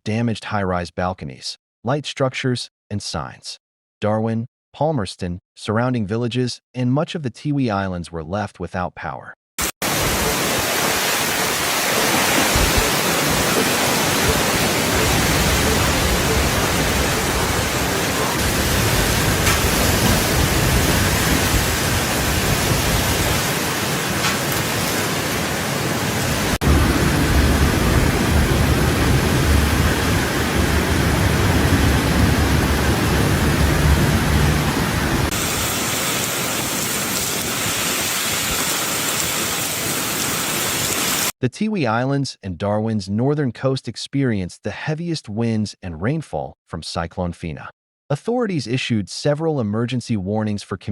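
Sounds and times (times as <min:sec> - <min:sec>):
heavy rain hissing: 0:09.6 - 0:41.3
strong wind: 0:12.4 - 0:35.8.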